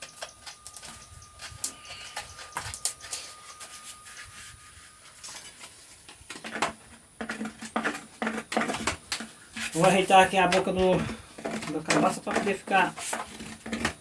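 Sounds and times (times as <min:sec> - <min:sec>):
hand tool scraping wet cement: 0:06.4 - 0:14.0.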